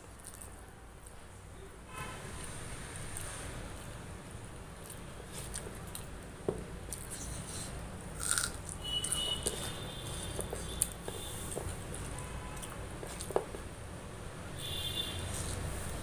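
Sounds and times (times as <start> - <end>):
person chewing with wet smacks: 0.1 - 1.2, 3.1 - 13.8.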